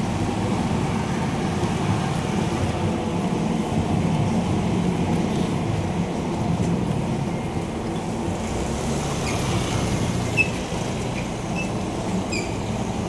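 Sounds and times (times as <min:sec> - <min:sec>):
vehicles on a wet road: 0:00.0 - 0:13.0
short high squeaks: 0:11.2 - 0:12.6.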